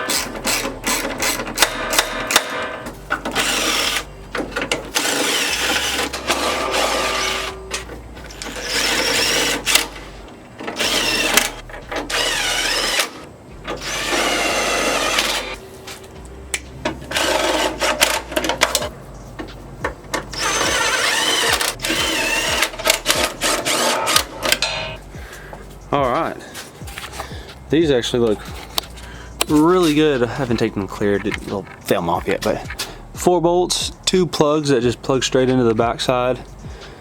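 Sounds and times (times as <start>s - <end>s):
cordless power driver whine: 0.0s - 15.6s, 16.3s - 18.9s, 20.2s - 25.0s.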